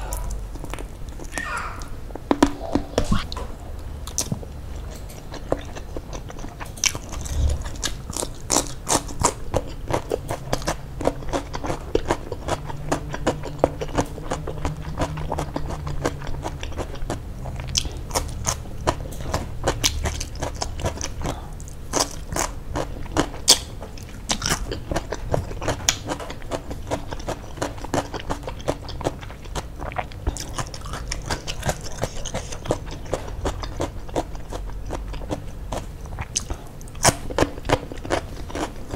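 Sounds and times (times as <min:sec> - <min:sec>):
crunchy wet chewing: 0:00.0 - 0:38.9.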